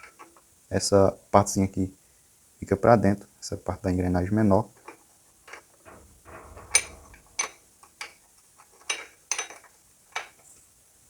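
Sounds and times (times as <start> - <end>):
metal engine parts clinking: 5.5 - 8.2, 8.8 - 10.4.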